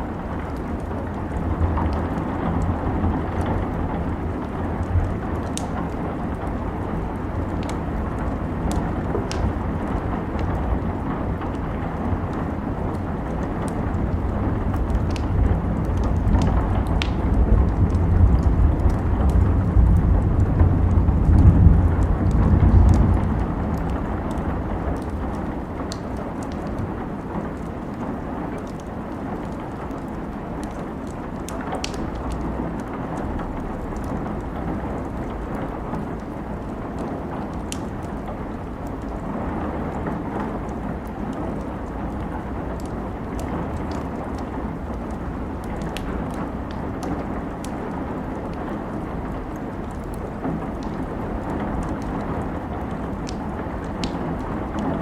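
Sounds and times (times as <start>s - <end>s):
steady rain: 0.0s - 55.0s
wood fire crackling: 0.0s - 55.0s
deep low rumble: 14.6s - 24.5s.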